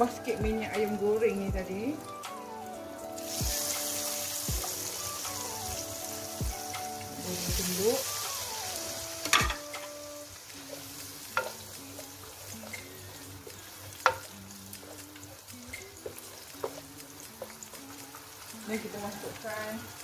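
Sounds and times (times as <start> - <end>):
simple background melody: 0.0 - 20.0
spice paste sizzling in a wok: 0.0 - 20.0
wooden spoon knocking on pan: 9.2 - 9.9, 14.0 - 14.3.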